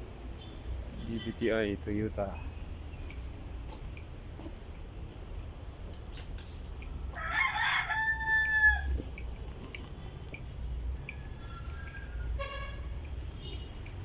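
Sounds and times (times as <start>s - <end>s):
rooster crowing: 7.1s - 9.0s, 11.0s - 12.9s.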